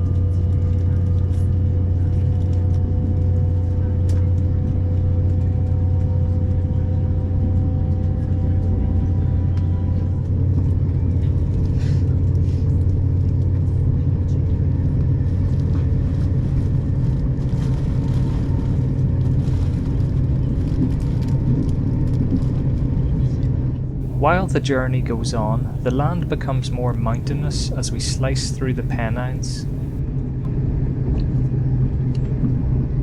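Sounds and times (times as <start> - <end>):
train hum: 24.0 - 30.0
train interior rumble: 24.0 - 30.0.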